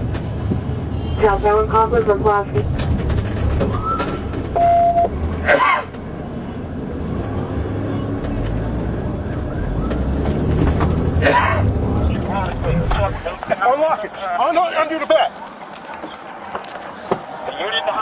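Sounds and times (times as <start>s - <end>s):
car engine and road noise: 0.0s - 18.0s
short single-pitch beep: 4.6s - 5.1s
person speaking: 11.9s - 18.0s.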